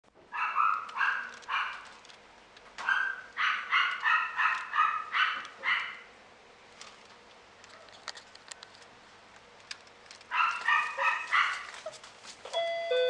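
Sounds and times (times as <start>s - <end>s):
puppy yipping: 0.3s - 1.9s, 2.8s - 6.0s, 10.3s - 12.1s.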